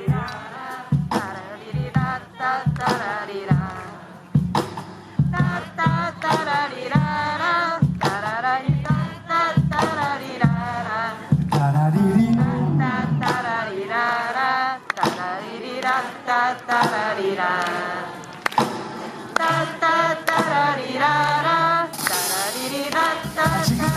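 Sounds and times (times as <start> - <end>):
music: 0.0 - 23.9
person singing wavering notes: 12.0 - 13.8.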